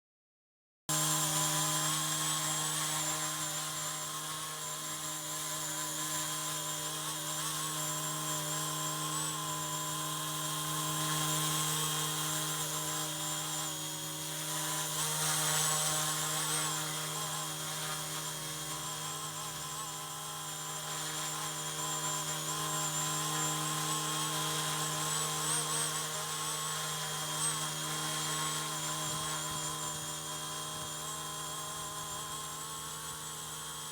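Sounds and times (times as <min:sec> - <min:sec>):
toy helicopter motor whine: 0:00.9 - 0:33.9.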